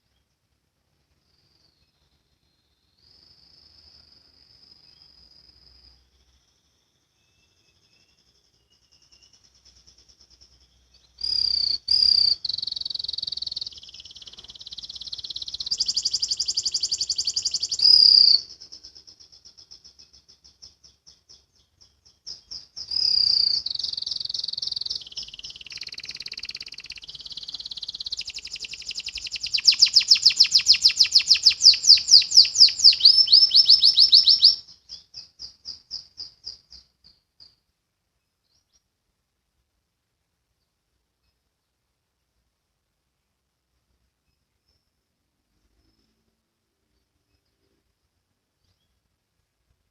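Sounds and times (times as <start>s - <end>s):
soft bird chirps: 0.0s - 39.0s, 43.2s - 49.9s
canary singing trills: 1.2s - 37.6s.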